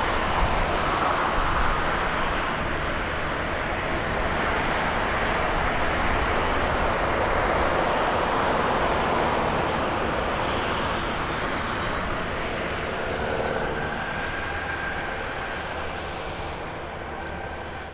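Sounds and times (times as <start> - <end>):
propeller plane engine droning: 0.0 - 17.9.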